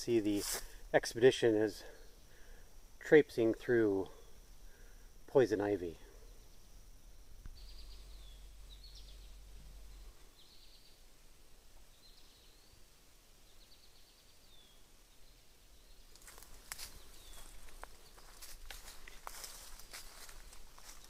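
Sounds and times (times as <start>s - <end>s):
bird buzzy chirp: 5.8s - 11.1s, 11.9s - 21.0s
footstep crunches: 16.1s - 21.0s.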